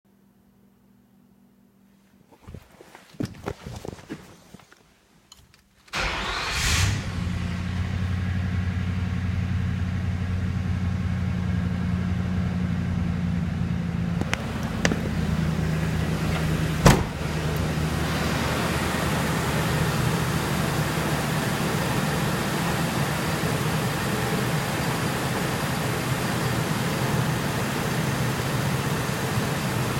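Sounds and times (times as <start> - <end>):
car engine starting and idling: 5.9 - 29.9.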